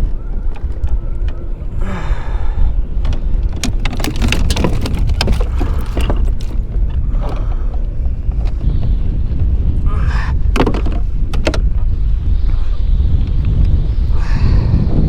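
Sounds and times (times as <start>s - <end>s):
wind rumbling on microphone: 0.0s - 15.0s
sharp clicks and knocks: 3.1s - 6.7s.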